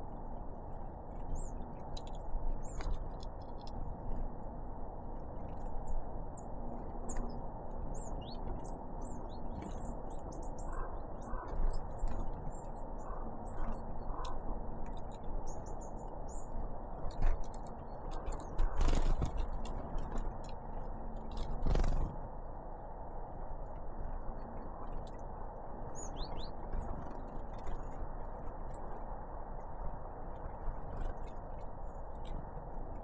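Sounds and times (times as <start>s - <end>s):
low background noise: 0.0s - 33.0s
birds chirping: 7.1s - 16.6s.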